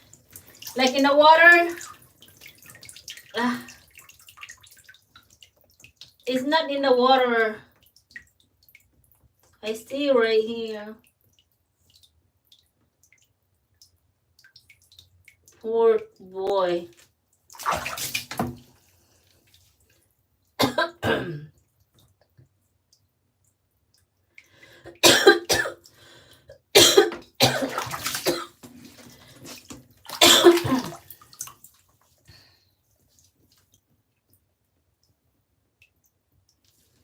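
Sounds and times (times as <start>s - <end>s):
person coughing: 20.6s - 21.5s, 25.0s - 25.8s, 26.8s - 28.5s, 30.2s - 31.0s.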